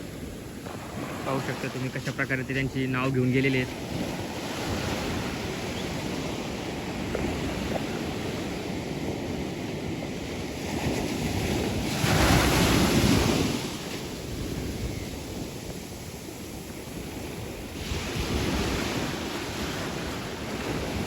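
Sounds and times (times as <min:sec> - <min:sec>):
sea surf breaking: 0:00.0 - 0:21.0
wind on microphone: 0:00.0 - 0:21.0.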